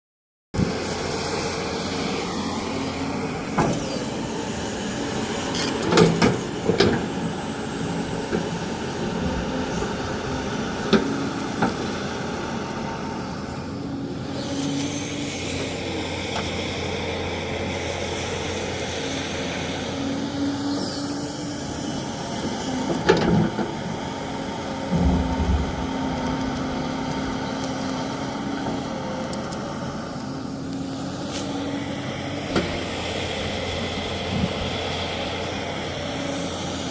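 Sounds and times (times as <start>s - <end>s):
excavator diesel engine running: 0.6s - 36.9s
sharp knocks: 24.9s - 27.4s.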